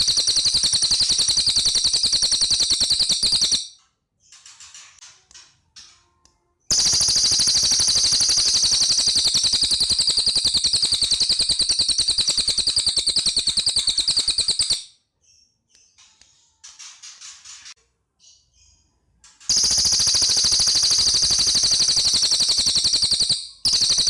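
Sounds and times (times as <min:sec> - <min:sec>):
bird singing rattling trill: 0:00.0 - 0:04.9, 0:06.7 - 0:15.6, 0:19.5 - 0:24.0.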